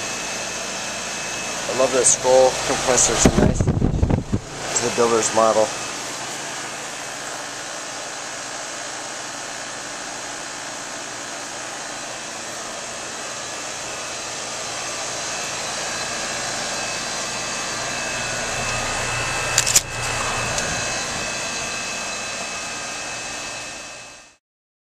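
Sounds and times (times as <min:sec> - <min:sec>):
condensing unit running: 0:00.0 - 0:24.3
faint steady whine: 0:12.0 - 0:24.4.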